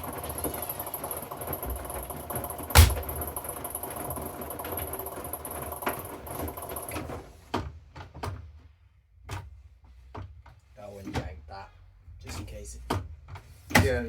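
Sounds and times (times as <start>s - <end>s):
washing machine running: 0.0s - 7.7s
sharp knock: 2.8s - 3.1s.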